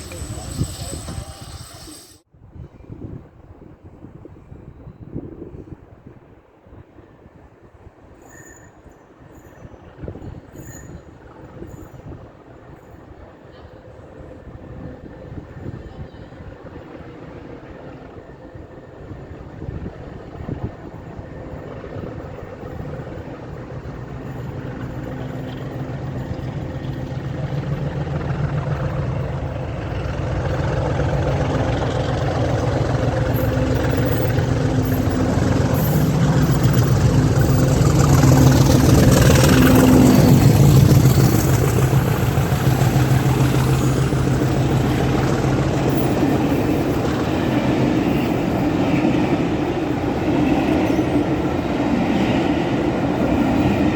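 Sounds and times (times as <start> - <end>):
diesel locomotive engines droning: 0.0 - 2.2, 9.4 - 53.9.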